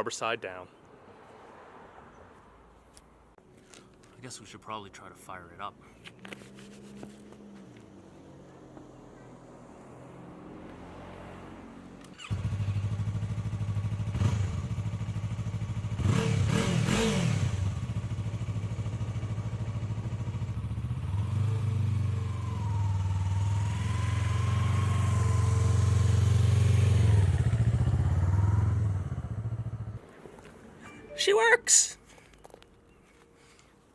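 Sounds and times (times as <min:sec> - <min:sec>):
motorcycle engine starting and idling: 0:12.0 - 0:30.1.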